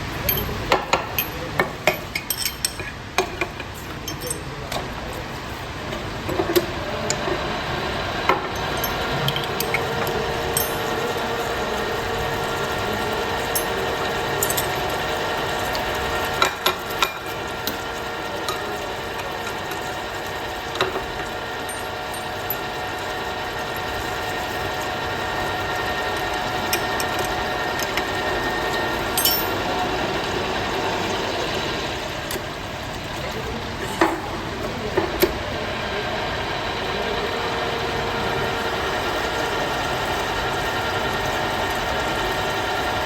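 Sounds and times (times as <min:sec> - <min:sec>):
workshop machinery humming: 0:00.0 - 0:43.0.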